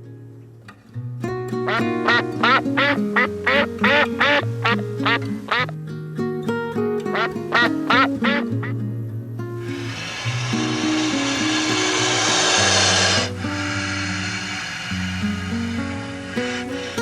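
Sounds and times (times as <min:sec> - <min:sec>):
background music with held notes: 0:01.4 - 0:10.2
short animal calls: 0:01.7 - 0:05.7, 0:09.6 - 0:17.0.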